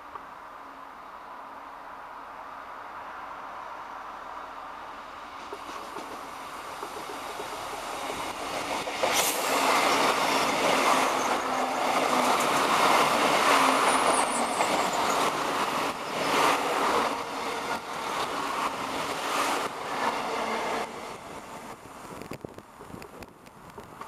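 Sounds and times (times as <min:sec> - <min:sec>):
train rolling past: 0:03.4 - 0:24.0
train wheels knocking: 0:05.5 - 0:13.4.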